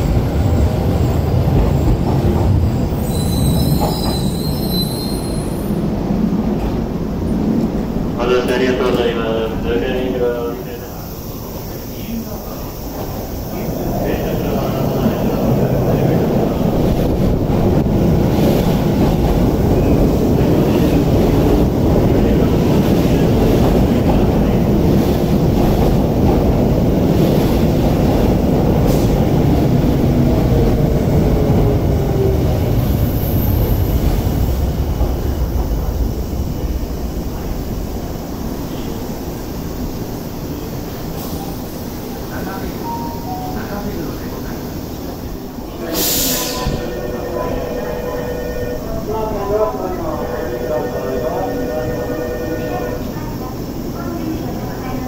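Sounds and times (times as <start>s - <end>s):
train wheels rumbling on rail: 0.0s - 47.2s
train brakes whining: 2.8s - 5.8s, 45.7s - 54.2s.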